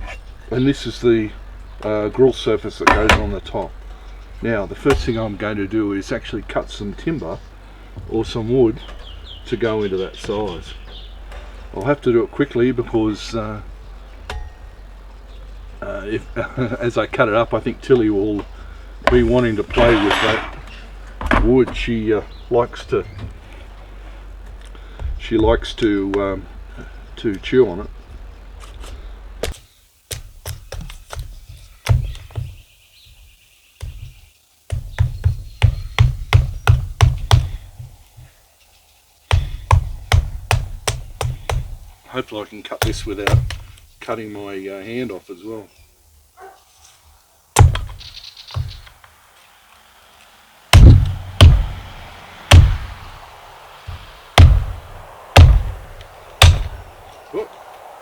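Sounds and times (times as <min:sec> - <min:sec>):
wood chopping strikes: 0:00.0 - 0:06.1, 0:14.2 - 0:14.9, 0:18.0 - 0:23.6, 0:28.8 - 0:32.6, 0:33.8 - 0:38.3, 0:39.3 - 0:41.9, 0:42.8 - 0:43.9, 0:47.6 - 0:49.0, 0:50.7 - 0:57.1.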